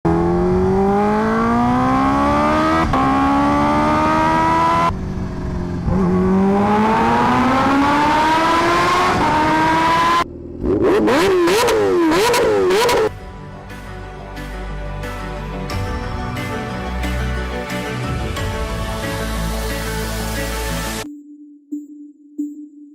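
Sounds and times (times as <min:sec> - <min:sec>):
motorcycle engine accelerating: 0:00.1 - 0:13.3
engine revving in quick blips: 0:05.8 - 0:13.1.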